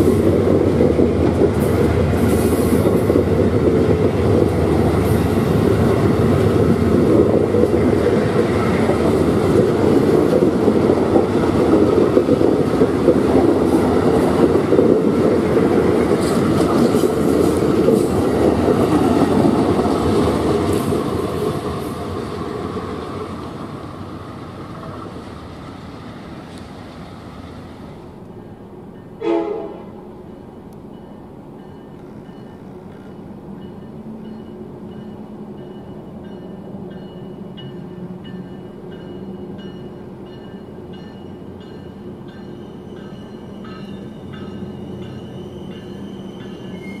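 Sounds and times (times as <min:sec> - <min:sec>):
passenger train noise: 0:00.0 - 0:47.0
train engine drone: 0:00.0 - 0:47.0
train wheel clicks: 0:07.1 - 0:21.8
high ringing from train wheels: 0:28.3 - 0:47.0
train horn toot: 0:29.2 - 0:30.1.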